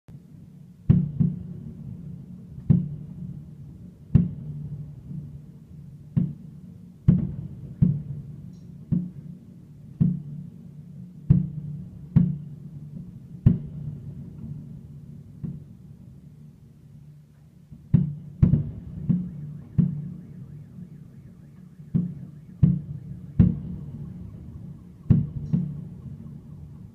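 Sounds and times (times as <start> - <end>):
fireworks bangs with rolling echo: 0.8 - 26.9.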